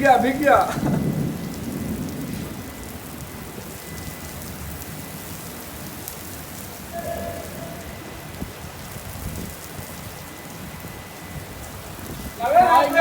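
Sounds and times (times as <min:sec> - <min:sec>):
heavy rain pouring: 0:00.0 - 0:13.0
faint tone: 0:06.9 - 0:08.4.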